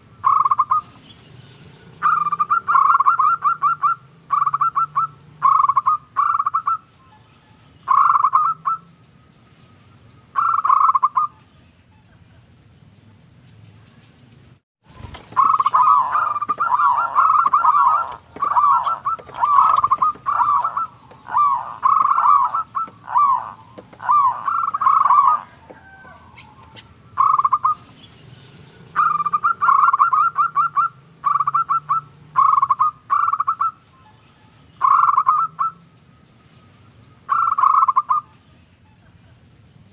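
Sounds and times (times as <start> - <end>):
dove cooing: 1.8 - 6.9, 15.0 - 27.9, 28.9 - 33.8, 34.8 - 35.8.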